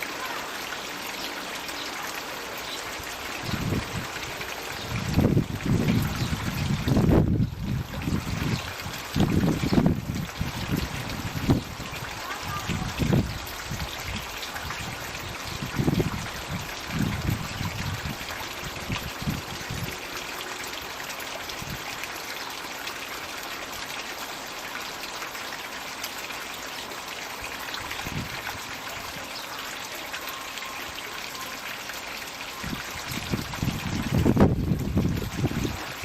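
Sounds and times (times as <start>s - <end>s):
water trickling and splashing: 0.0s - 36.0s.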